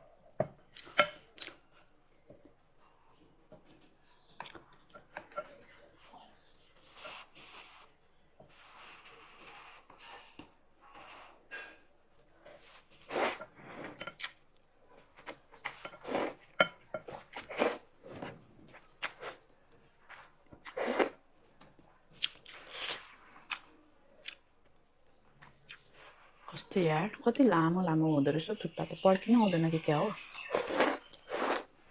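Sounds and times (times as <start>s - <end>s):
wet chewing: 0.7s - 1.7s, 15.2s - 19.4s, 20.1s - 21.2s, 22.2s - 24.5s, 28.6s - 31.8s
slurping noodles: 13.0s - 14.0s, 16.0s - 16.4s, 20.7s - 21.2s, 30.2s - 31.7s.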